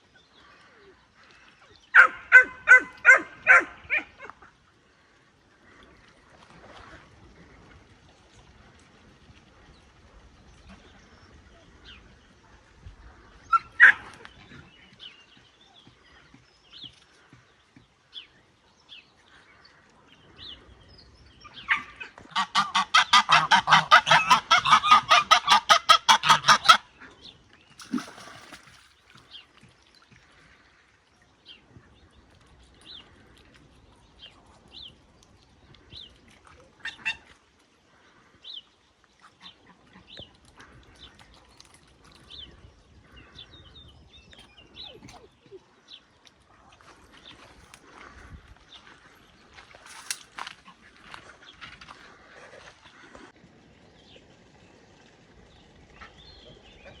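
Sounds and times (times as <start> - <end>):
waterfowl honking: 21.7 - 26.9.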